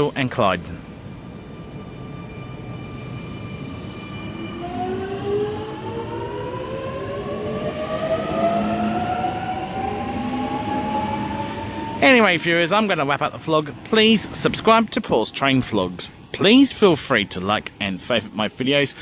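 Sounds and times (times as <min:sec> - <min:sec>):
electric train motor whine: 0:00.8 - 0:12.6.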